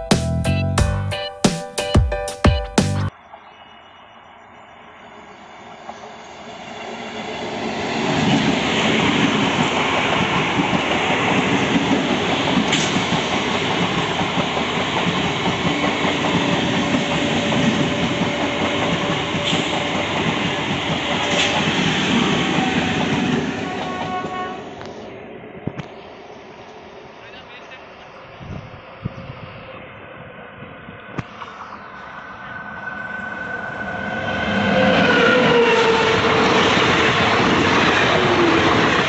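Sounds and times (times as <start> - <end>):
electric train passing: 3.1 - 39.0
wheels clacking on rails: 7.5 - 25.0.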